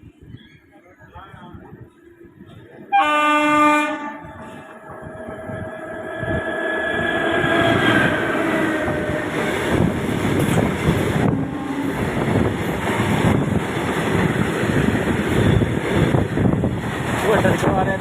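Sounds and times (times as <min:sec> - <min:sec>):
train running past: 0:02.4 - 0:18.0
train horn: 0:02.9 - 0:04.6, 0:11.2 - 0:12.2.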